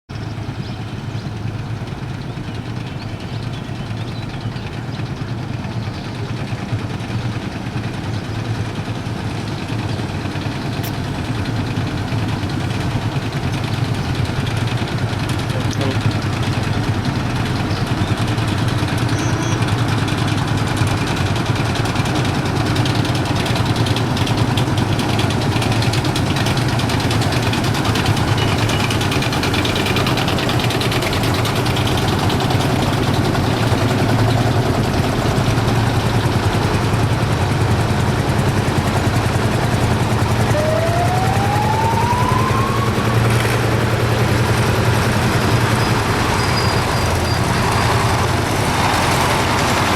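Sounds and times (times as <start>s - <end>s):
low engine hum: 0.1s - 49.9s
tone rising in pitch: 40.0s - 48.4s.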